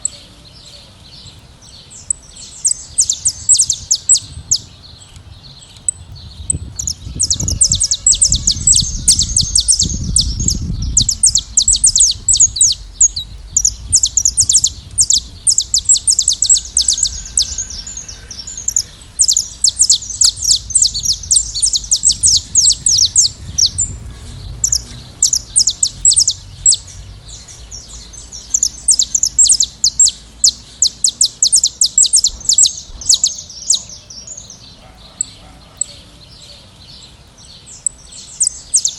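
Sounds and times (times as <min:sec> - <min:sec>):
finches singing: 0:00.0 - 0:38.9
low rumble: 0:01.2 - 0:30.8.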